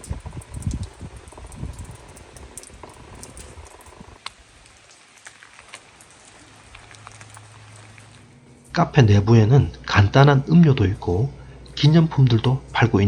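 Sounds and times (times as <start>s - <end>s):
drops pattering close by: 0.0s - 8.8s
rain falling: 0.0s - 13.0s.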